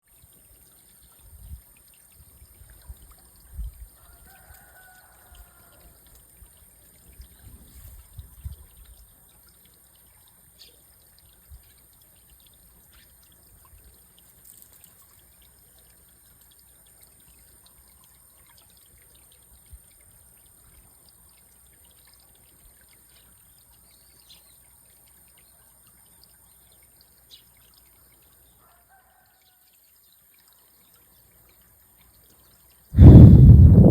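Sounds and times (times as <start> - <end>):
water trickling: 0.0 - 33.9
low thumps: 33.0 - 33.9.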